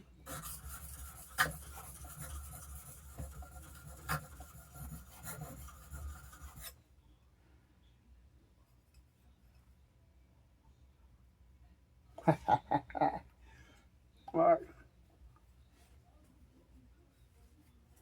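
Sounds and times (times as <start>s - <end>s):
blade scraping on whetstone: 0.3s - 6.7s.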